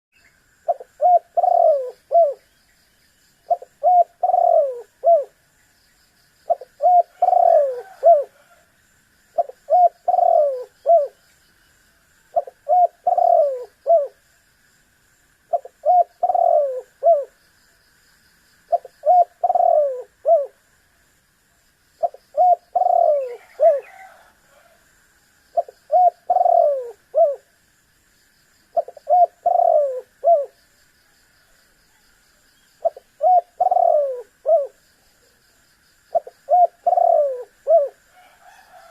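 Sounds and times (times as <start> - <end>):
dove cooing: 0.7 - 2.5, 3.4 - 5.4, 6.5 - 8.6, 9.4 - 11.2, 12.3 - 14.2, 15.5 - 17.4, 18.7 - 20.6, 22.0 - 24.8, 25.5 - 27.5, 28.7 - 30.6, 32.8 - 34.8, 36.1 - 38.9.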